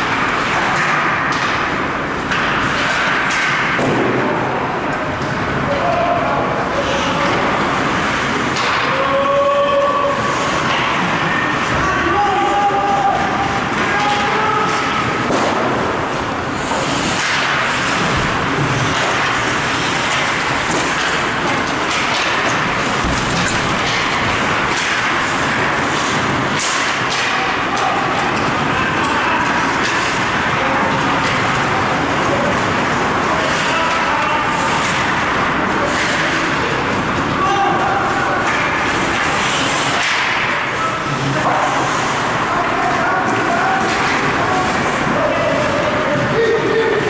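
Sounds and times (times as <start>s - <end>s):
arena crowd din: 20.6s - 47.0s.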